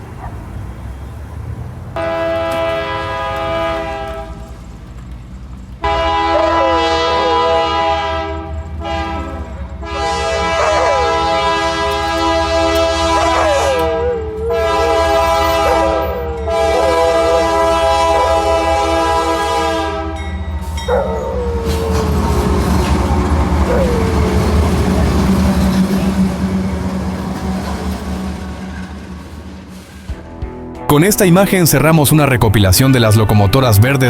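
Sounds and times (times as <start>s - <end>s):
train wheels clacking on rails: 0.0s - 30.3s
locomotive engine rumble: 0.0s - 34.0s
locomotive air horn blasts: 2.0s - 4.6s, 5.8s - 28.3s.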